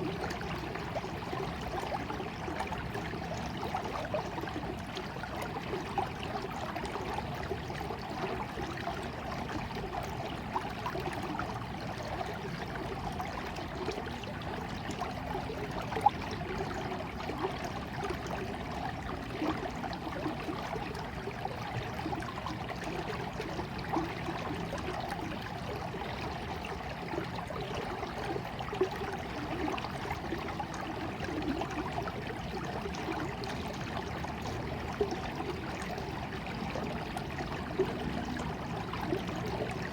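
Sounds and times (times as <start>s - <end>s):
small water splashes: 0.0s - 39.9s
stream of water flowing: 0.0s - 39.9s.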